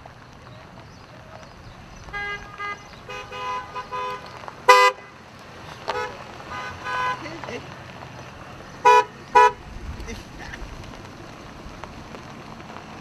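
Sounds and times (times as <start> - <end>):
vehicle horns honking: 2.0 - 5.2, 5.9 - 7.5, 8.8 - 9.6.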